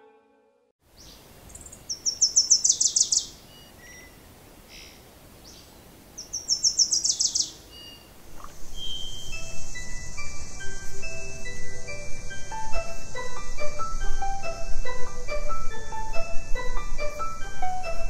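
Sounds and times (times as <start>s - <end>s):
outdoor background noise: 0.8s - 18.0s
bird singing: 0.9s - 18.0s
chime-like music: 8.9s - 18.0s.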